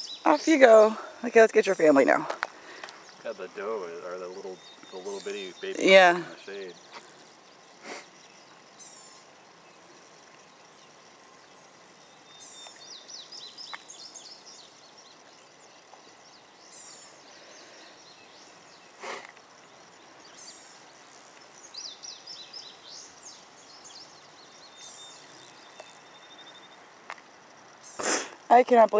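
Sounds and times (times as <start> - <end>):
songbirds chirping and trilling: 0.0 - 28.9
brief puff of noise: 7.8 - 8.1, 28.0 - 28.4.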